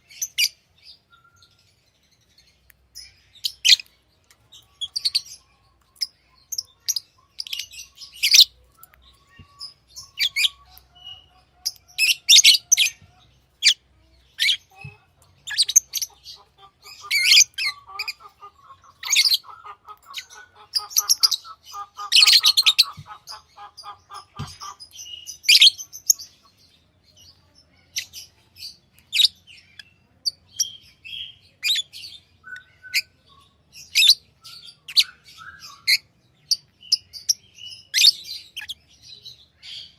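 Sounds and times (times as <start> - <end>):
lovebirds chirping: 0.0 - 39.9
fast stuttering bird chatter: 14.4 - 24.9.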